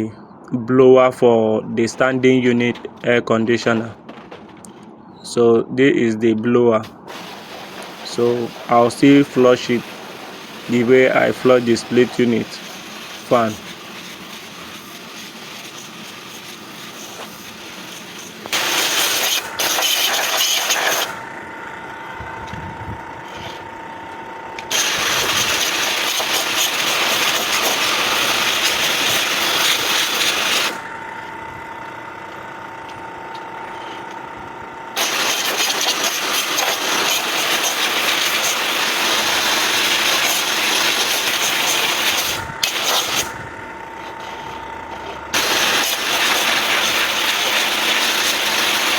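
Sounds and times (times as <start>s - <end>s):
machine humming with faint whine: 0.0s - 48.9s
pressure washer spraying hiss: 6.8s - 21.2s, 24.7s - 30.9s, 35.0s - 43.5s, 45.3s - 48.9s.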